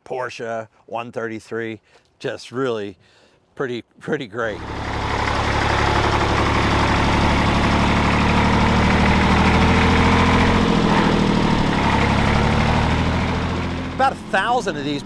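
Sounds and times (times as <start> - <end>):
diesel engine idling: 4.6 - 15.0.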